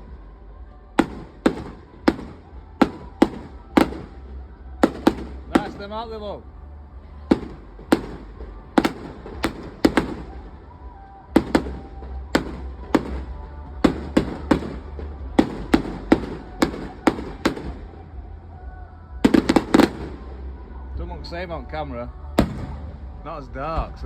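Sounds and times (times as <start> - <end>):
fireworks bangs: 1.0 - 6.2, 7.2 - 18.1, 19.2 - 20.5, 22.4 - 23.2.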